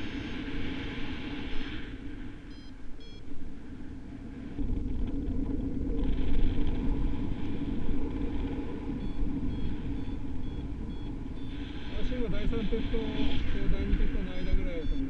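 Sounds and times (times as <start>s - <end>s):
high electronic beeps: 2.5s - 3.2s, 9.0s - 12.2s, 14.2s - 15.0s
wind buffeting microphone: 3.4s - 15.0s.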